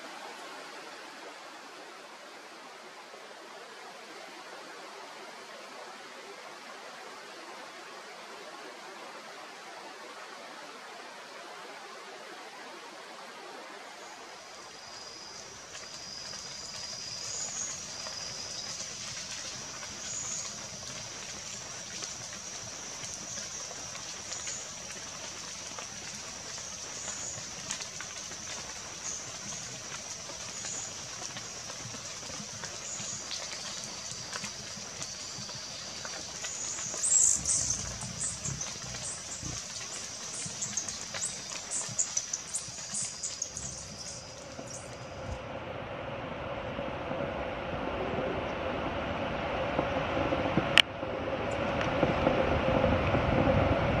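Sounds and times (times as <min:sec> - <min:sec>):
forest birdsong: 0:14.0 - 0:45.2.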